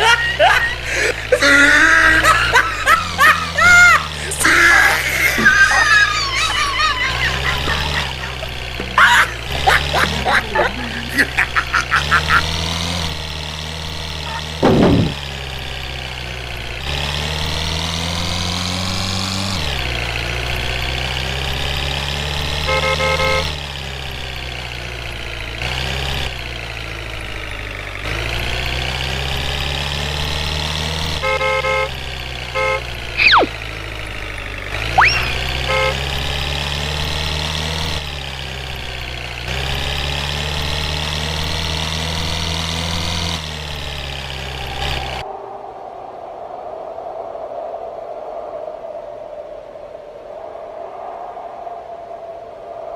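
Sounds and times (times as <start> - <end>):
truck engine drone: 0.0 - 46.2
short horn toots: 35.0 - 36.0.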